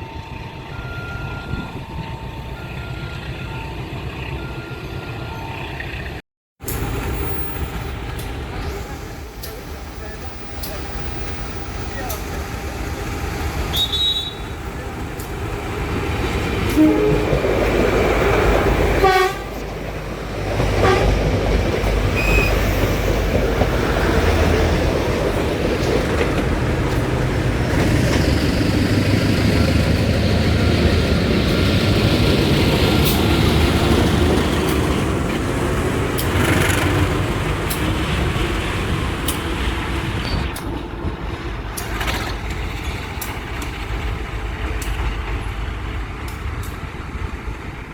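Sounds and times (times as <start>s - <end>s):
train rumbling on rails: 0.0s - 47.9s
train horn: 13.7s - 14.6s, 16.6s - 17.5s, 19.0s - 19.7s, 20.8s - 21.2s.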